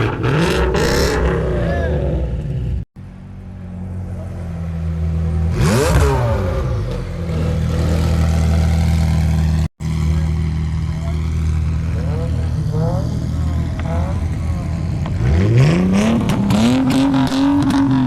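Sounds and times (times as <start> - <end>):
engine revving: 0.0 - 2.9, 4.4 - 18.0
vehicle engine idling: 0.6 - 5.8, 6.7 - 15.4.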